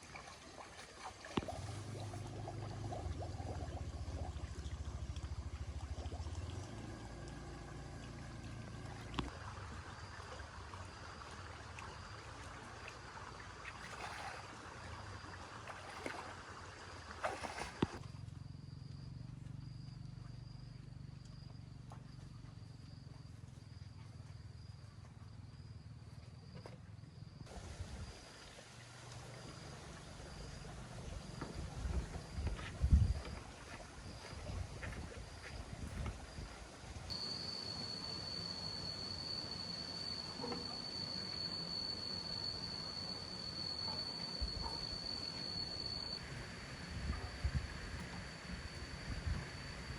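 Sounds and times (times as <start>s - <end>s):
low hum: 1.4s - 10.3s
high insect trill: 6.8s - 49.9s.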